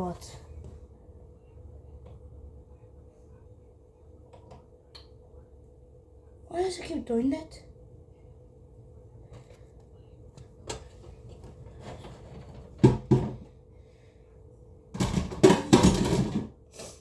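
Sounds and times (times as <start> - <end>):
faint hum: 0.0 - 17.0
kitchenware clattering and rattling: 11.4 - 13.5, 15.0 - 16.6.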